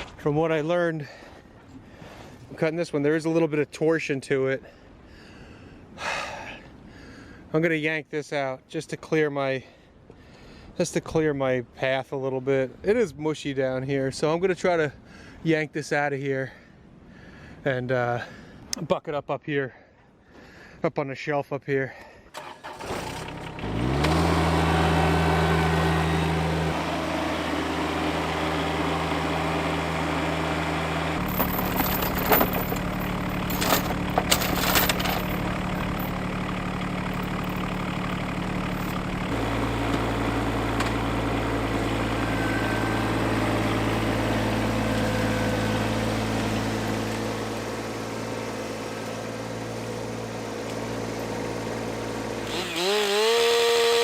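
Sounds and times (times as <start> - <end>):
tractor engine running: 22.4 - 54.0
metallic clanks: 31.2 - 36.2.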